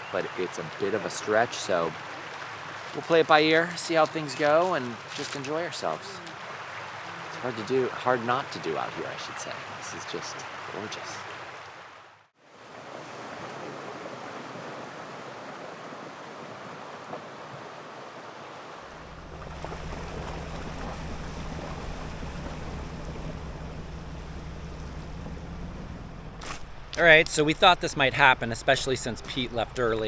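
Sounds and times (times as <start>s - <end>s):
vehicle engine hum: 18.9s - 30.0s.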